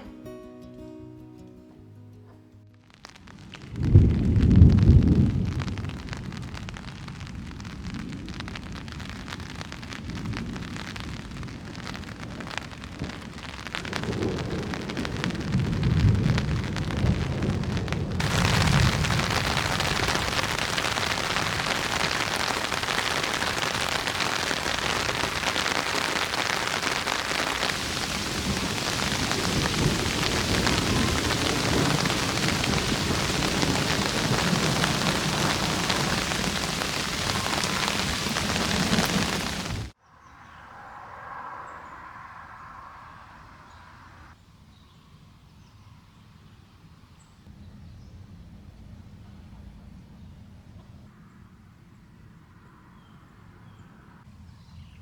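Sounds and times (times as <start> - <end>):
light rain: 2.7 - 40.0
heavy rain downpour: 2.8 - 40.0
thunder rumbling: 2.9 - 40.0.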